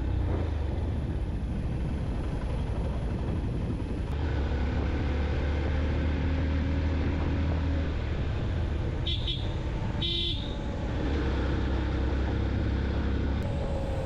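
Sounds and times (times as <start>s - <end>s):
road and wind noise: 0.0s - 14.0s.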